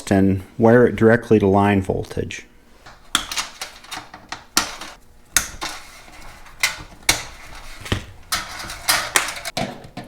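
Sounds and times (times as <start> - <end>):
metallic clinks and knocks: 2.9 - 9.5.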